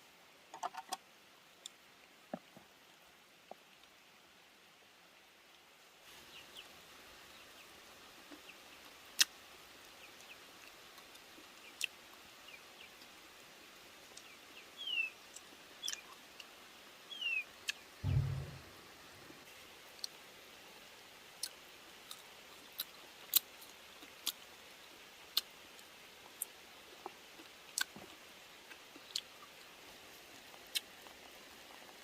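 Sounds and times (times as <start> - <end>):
low thump: 18.0 - 18.8.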